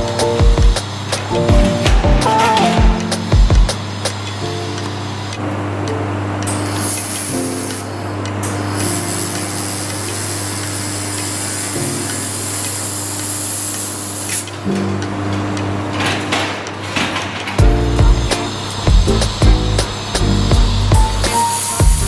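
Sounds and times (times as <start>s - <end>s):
background music with held chords: 0.0s - 5.2s, 17.6s - 22.0s
laser welding torch hissing: 6.5s - 14.6s, 17.8s - 22.0s.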